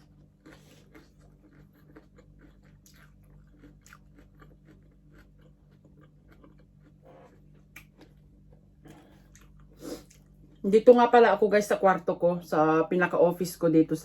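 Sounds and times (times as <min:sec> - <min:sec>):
person chewing crunchy food: 0:00.0 - 0:10.6
steady low hum: 0:00.0 - 0:14.0.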